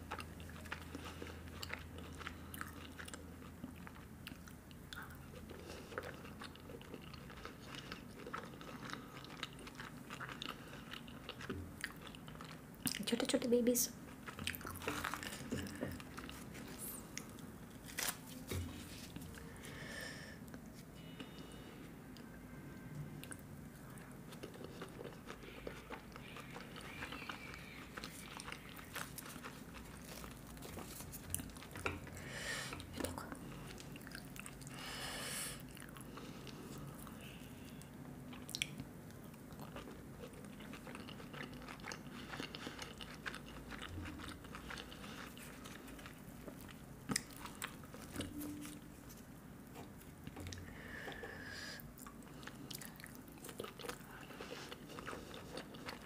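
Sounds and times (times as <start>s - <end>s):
person chewing and biting food: 0.0s - 13.0s, 24.3s - 34.8s, 35.6s - 50.7s, 51.8s - 56.0s.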